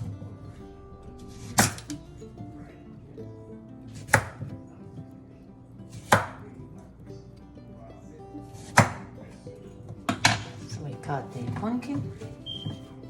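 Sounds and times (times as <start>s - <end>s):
knife chopping on cutting board: 1.3s - 2.0s, 3.9s - 4.6s, 5.9s - 6.5s, 8.6s - 9.2s.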